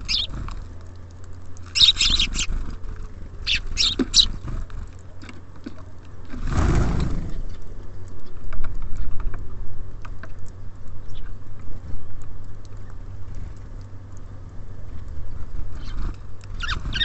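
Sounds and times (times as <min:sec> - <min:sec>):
wings fluttering: 0:00.0 - 0:05.7, 0:14.9 - 0:17.0
steady low hum: 0:00.0 - 0:17.0
beaks tapping on bird feeder: 0:03.5 - 0:04.4.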